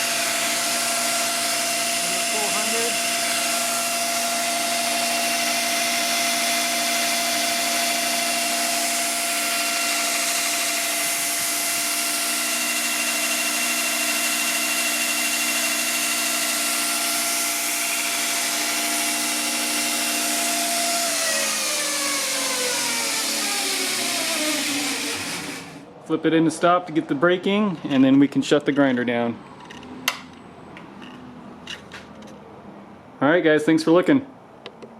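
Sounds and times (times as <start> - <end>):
belt grinder whine: 0.0 - 25.9.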